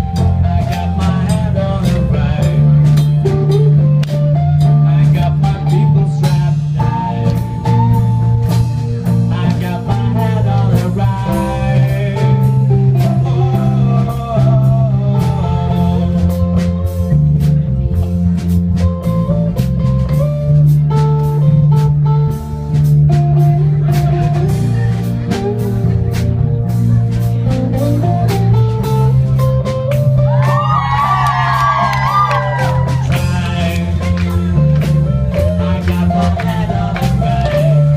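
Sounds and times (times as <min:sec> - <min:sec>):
bass guitar: 0:00.0 - 0:37.9
drum kit: 0:00.0 - 0:37.9
electric guitar melody: 0:00.0 - 0:37.9.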